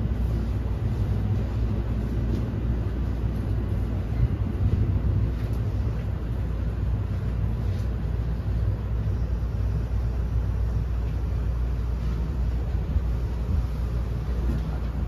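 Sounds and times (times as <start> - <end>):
train running rumble: 0.0 - 15.0.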